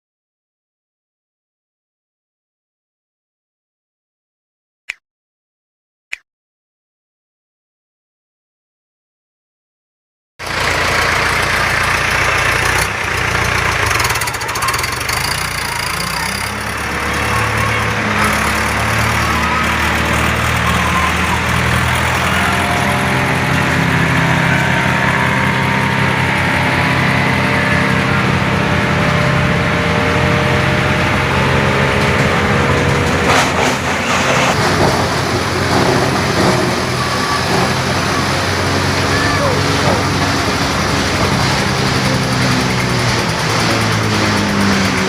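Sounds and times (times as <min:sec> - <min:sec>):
shredder engine drone: 0:10.4 - 0:45.0.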